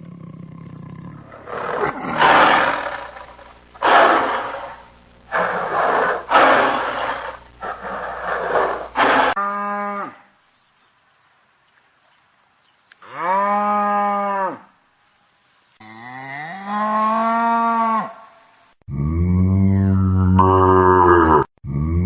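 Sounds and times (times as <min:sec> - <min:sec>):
animal roaring: 0:00.0 - 0:10.2.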